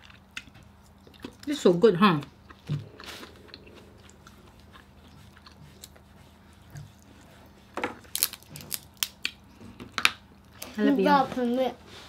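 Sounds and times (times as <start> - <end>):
people chewing: 0.0 - 10.8.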